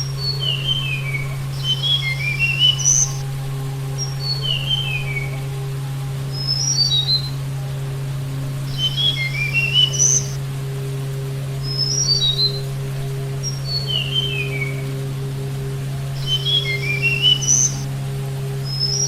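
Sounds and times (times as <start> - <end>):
songbird whistling: 0.0 - 3.3, 4.0 - 5.4, 6.3 - 7.4, 8.6 - 10.4, 11.6 - 12.6, 13.4 - 14.8, 16.2 - 17.9, 18.6 - 19.0
steady low hum: 0.0 - 19.0.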